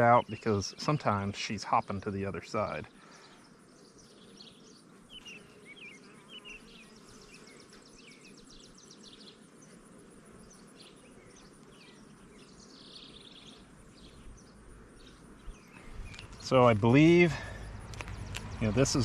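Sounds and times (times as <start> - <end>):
bees buzzing: 0.0 - 19.0
bird chirps: 3.0 - 9.4, 10.4 - 19.0.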